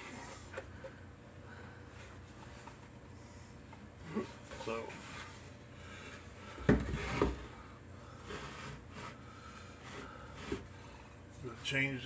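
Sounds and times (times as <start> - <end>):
knocks on a workbench: 6.6 - 7.4.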